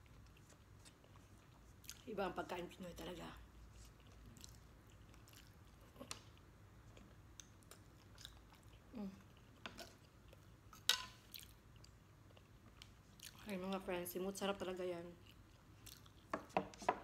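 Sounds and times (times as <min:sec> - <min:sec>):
person chewing food: 0:00.0 - 0:02.0, 0:03.6 - 0:13.5, 0:15.2 - 0:16.5.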